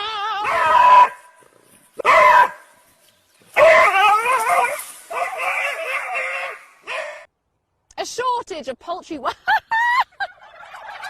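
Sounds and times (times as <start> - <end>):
dog whine-howling: 0.0 - 1.2.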